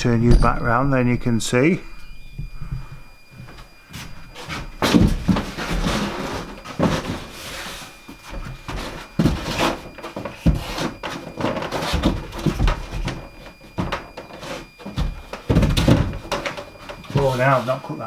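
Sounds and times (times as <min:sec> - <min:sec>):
wood knocking and scraping on wood: 0:04.4 - 0:17.7.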